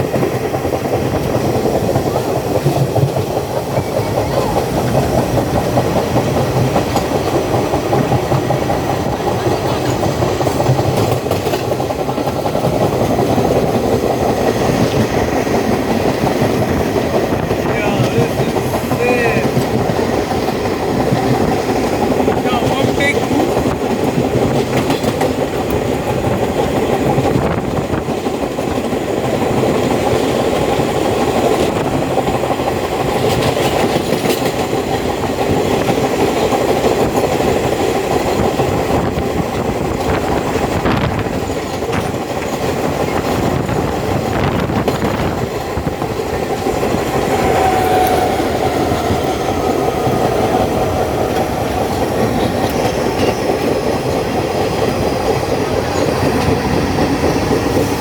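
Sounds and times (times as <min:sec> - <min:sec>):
subway train rumbling: 0:00.0 - 0:58.0
wheels clicking over rail joints: 0:00.0 - 0:58.0.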